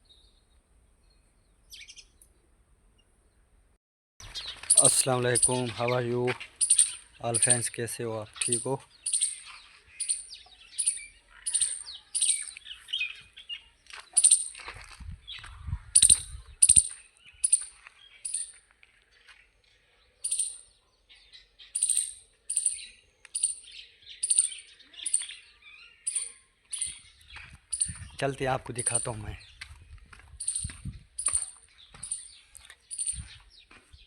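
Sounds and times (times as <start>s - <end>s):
small bird chirping: 0.0s - 2.4s, 4.2s - 14.6s, 15.2s - 34.0s.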